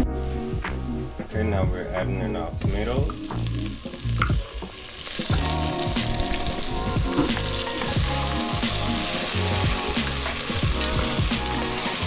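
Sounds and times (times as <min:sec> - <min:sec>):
background music with a beat: 0:00.0 - 0:12.0
vegetables sizzling in oil: 0:02.6 - 0:12.0.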